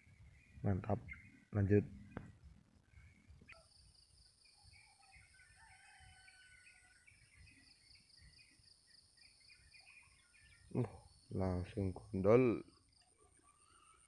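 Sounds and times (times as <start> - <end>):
bird chirps: 0.0 - 14.0
distant rooster crowing: 5.0 - 7.2.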